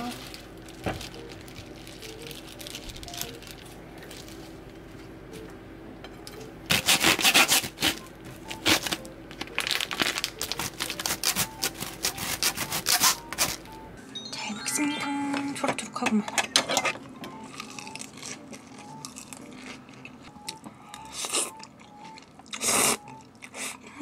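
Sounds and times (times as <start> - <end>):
crisp crunching of food chewed: 17.4 - 23.7.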